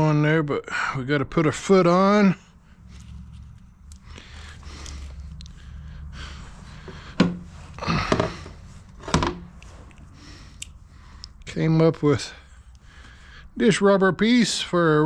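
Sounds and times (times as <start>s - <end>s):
low steady hum: 0.0s - 15.0s
hard parts clunking down: 6.8s - 9.6s.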